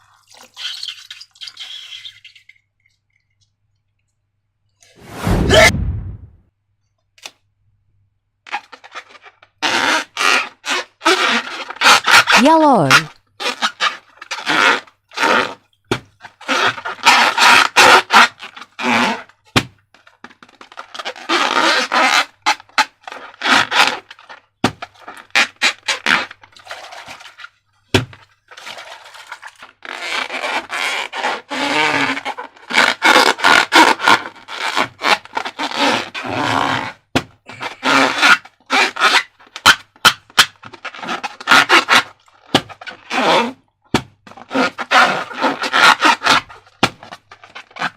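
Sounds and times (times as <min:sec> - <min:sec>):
rubber rubbing and scraping: 0:04.8 - 0:06.4, 0:08.5 - 0:15.6, 0:16.2 - 0:47.9
slime squelches: 0:12.4 - 0:13.1.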